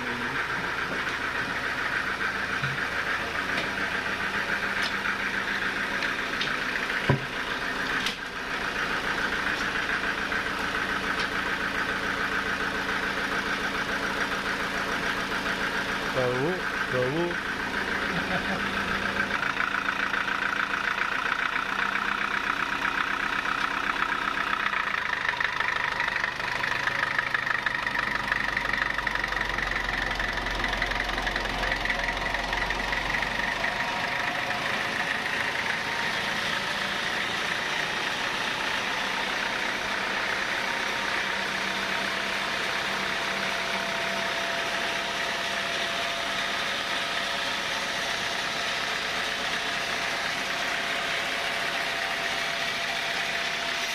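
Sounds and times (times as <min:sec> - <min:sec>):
saw cutting timber: 0:44.1 - 0:53.9.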